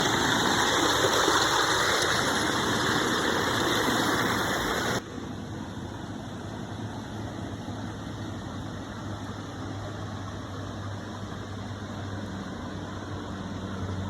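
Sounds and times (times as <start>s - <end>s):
waterfall rushing: 0.0s - 5.0s.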